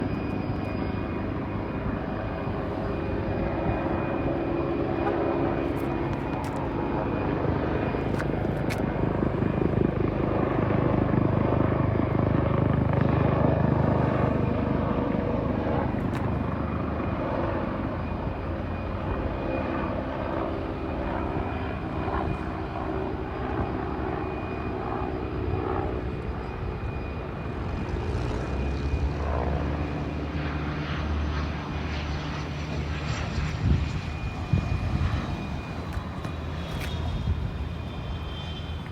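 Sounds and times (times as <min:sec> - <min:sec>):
helicopter rotor thrum: 0:00.0 - 0:11.6, 0:32.5 - 0:38.9
high turbine whine: 0:00.0 - 0:38.9.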